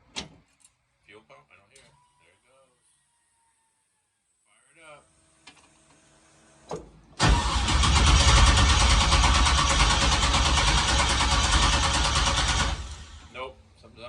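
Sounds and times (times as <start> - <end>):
car engine starting and running: 6.7 - 13.3.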